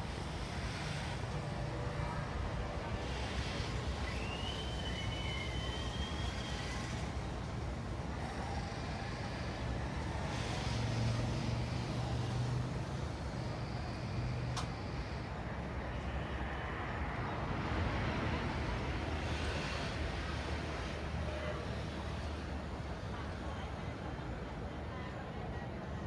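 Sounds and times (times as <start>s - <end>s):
rumble of passing vehicles: 0.0s - 26.0s
thin high whistle: 3.9s - 7.1s.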